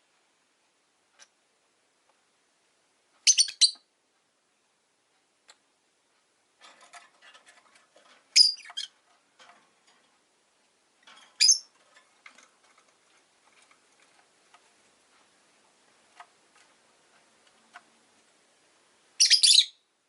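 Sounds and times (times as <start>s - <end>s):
lovebirds chirping: 3.2s - 3.9s, 8.3s - 9.0s, 11.2s - 11.8s, 19.2s - 19.9s
birds clicking and scratching in cage: 5.4s - 18.4s.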